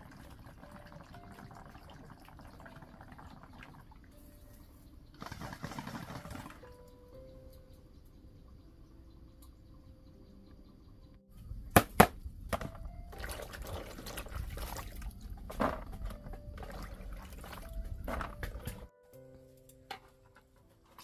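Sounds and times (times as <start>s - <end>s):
water pouring and splashing: 0.0s - 4.3s, 5.2s - 6.7s, 12.5s - 18.9s.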